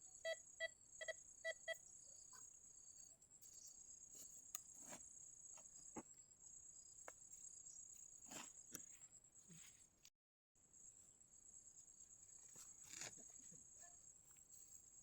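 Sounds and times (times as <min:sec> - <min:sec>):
insect chirring: 0:00.0 - 0:09.1.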